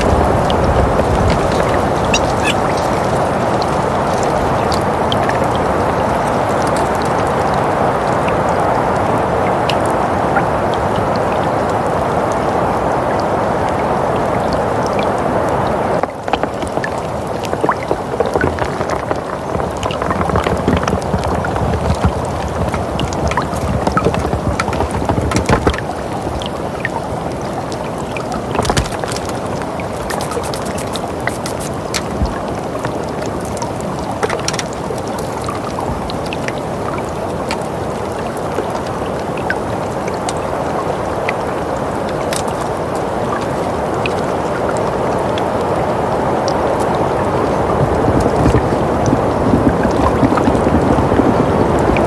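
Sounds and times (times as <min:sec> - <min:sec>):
small crackles and clicks: 0:16.0 - 0:40.5, 0:42.1 - 0:44.2, 0:47.6 - 0:52.0.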